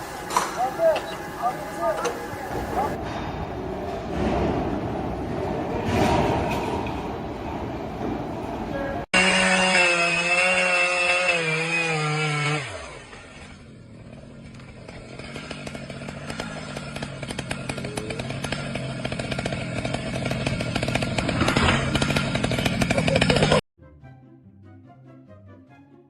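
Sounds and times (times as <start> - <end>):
small engine buzzing at high revs: 9.1 - 23.6.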